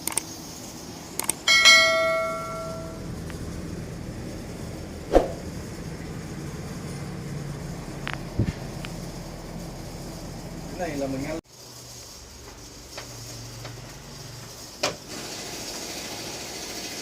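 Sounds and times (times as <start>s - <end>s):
steady low hum: 0.0s - 11.4s
bright ringing strike: 1.5s - 3.1s.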